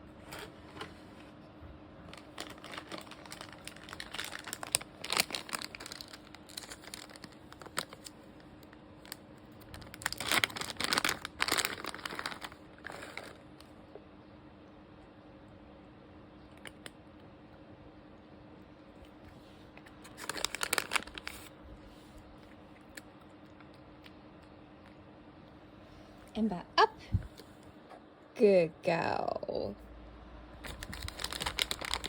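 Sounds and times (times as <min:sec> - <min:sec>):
plastic bag crinkling: 0:02.1 - 0:13.7, 0:20.0 - 0:21.6, 0:30.6 - 0:32.0.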